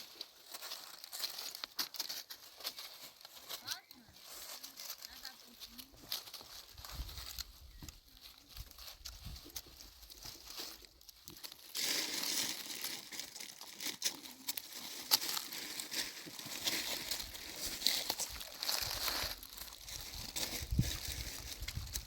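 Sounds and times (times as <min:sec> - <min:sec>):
crinkling rustling noise: 0:00.0 - 0:22.0.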